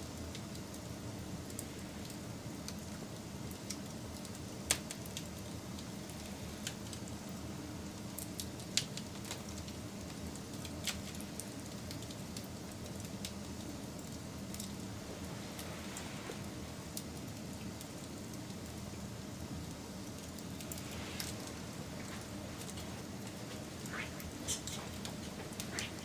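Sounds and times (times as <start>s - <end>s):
burning wood crackling and popping: 0.0s - 26.0s
fire flames rushing: 14.4s - 26.0s.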